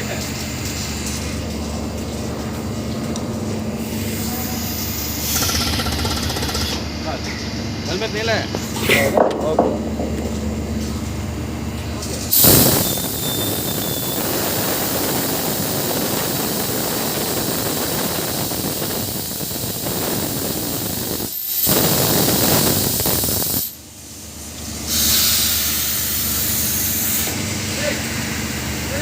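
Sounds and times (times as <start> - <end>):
drilling rig rushing hiss: 3.8 - 6.9, 12.3 - 23.9, 24.8 - 29.0.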